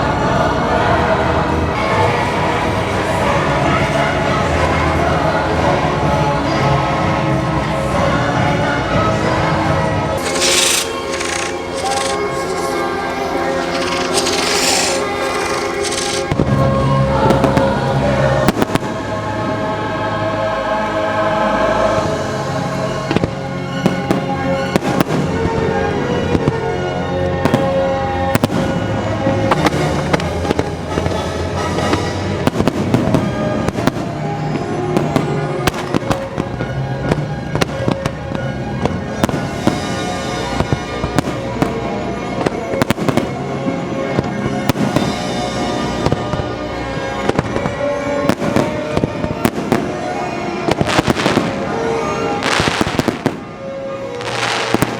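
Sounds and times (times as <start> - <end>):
orchestral music over speakers: 0.0 - 54.9
firework bangs and crackling pops: 10.2 - 17.8, 18.4 - 19.1, 23.1 - 26.8, 27.4 - 54.9.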